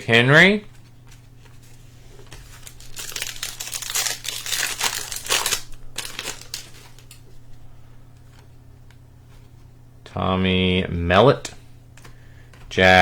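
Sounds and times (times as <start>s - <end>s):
plastic wrapper crinkling: 2.2s - 7.2s.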